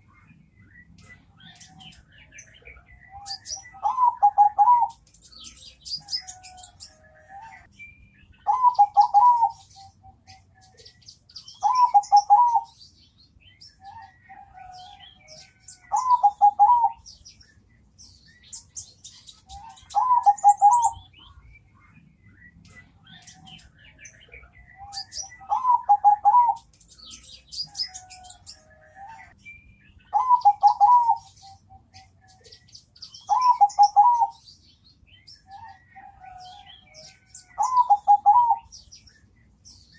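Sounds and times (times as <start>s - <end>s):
faint high-pitched chirping: 0.0s - 39.9s
dove cooing: 2.6s - 5.0s, 8.4s - 10.5s, 11.6s - 12.8s, 13.8s - 17.1s, 19.5s - 21.0s, 24.5s - 26.7s, 30.1s - 32.6s, 33.2s - 34.4s, 35.5s - 38.7s.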